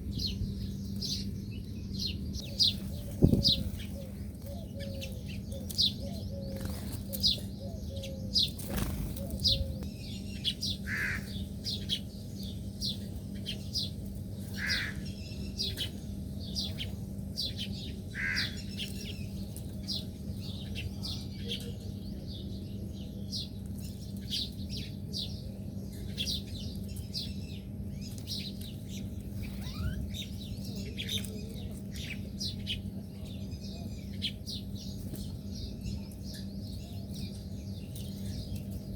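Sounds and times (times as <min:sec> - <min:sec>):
small birds chirping: 0:00.0 - 0:38.9
steady low hum: 0:00.0 - 0:38.9.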